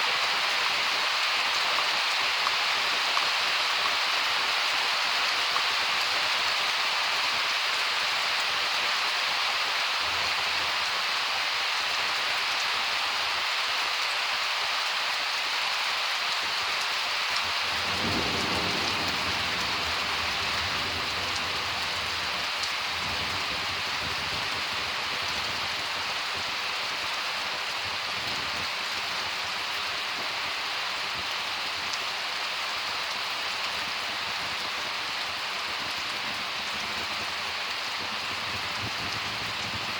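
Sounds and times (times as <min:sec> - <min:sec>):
heavy rain falling: 0:00.0 - 0:39.9
thunder rumbling: 0:17.7 - 0:24.5.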